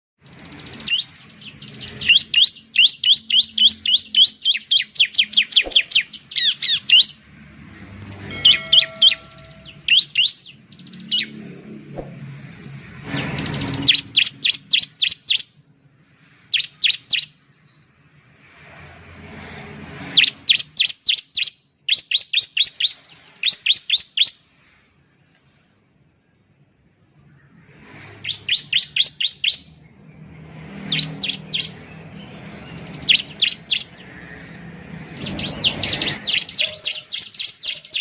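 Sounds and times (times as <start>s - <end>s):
bird calling in sharp rapid notes: 0.6s - 7.1s, 8.2s - 11.4s, 28.2s - 29.7s.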